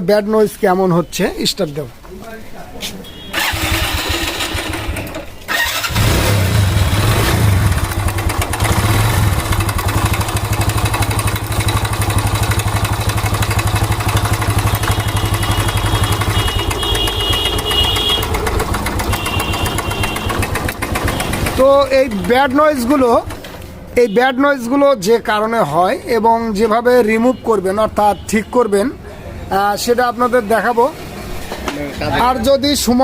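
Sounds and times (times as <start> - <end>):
motorcycle engine idling with rattle: 3.1 - 23.7.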